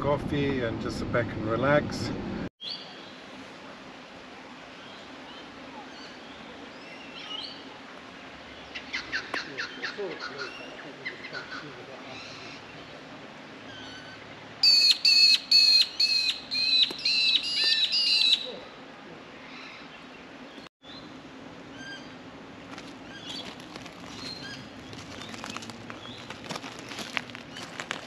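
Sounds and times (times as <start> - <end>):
bird repeated high calls: 13.7 - 18.6.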